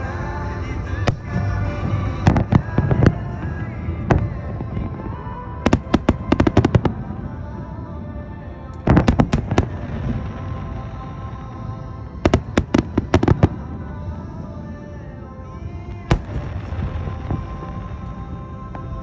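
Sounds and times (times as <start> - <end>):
music: 0.0 - 19.0
fireworks cracks and bangs: 8.9 - 10.9, 16.1 - 19.0.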